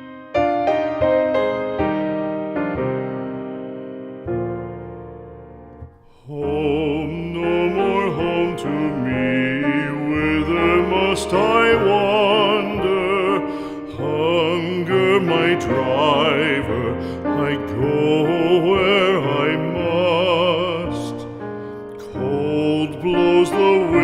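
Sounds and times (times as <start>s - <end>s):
piano: 0.0s - 24.0s.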